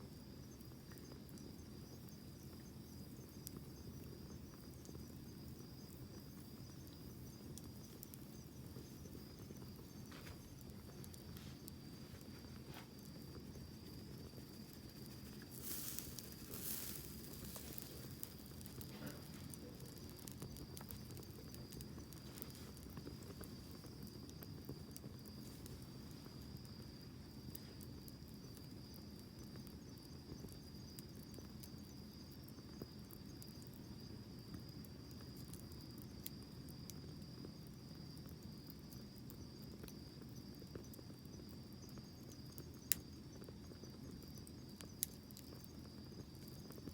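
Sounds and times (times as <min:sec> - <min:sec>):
insect trill: 0:00.0 - 0:46.9
wood fire crackling: 0:00.0 - 0:46.9
hiss of flame: 0:03.2 - 0:29.2.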